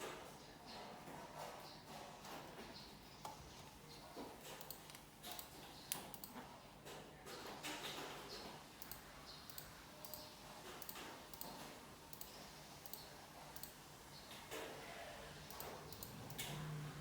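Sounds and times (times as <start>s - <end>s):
computer mouse clicking: 4.5s - 6.4s, 8.8s - 13.8s, 15.4s - 16.8s.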